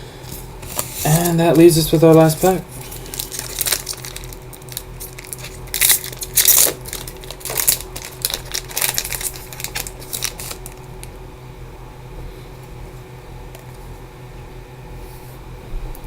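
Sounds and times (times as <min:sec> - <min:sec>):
cards being handled: 0:00.3 - 0:11.1
card pack wrapper crinkling and tearing: 0:00.3 - 0:11.2.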